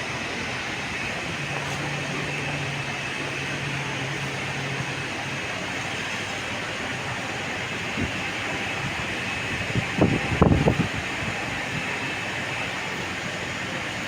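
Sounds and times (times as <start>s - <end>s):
train running: 0.0s - 14.0s.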